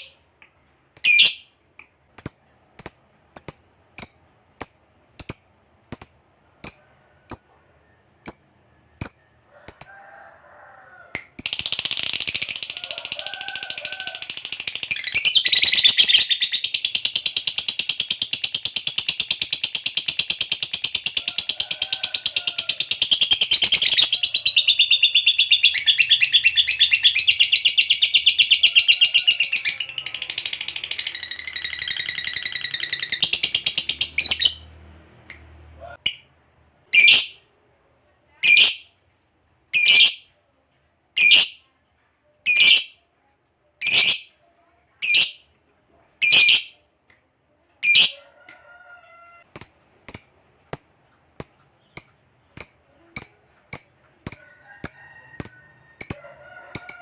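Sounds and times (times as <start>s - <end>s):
bird chirping and trilling: 1.0s - 7.5s, 14.3s - 21.5s, 22.8s - 34.7s, 39.8s - 40.2s, 42.5s - 43.0s.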